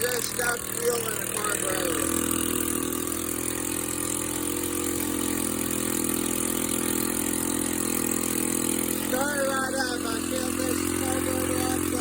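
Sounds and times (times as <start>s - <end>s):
small gasoline engine running: 0.0s - 12.0s.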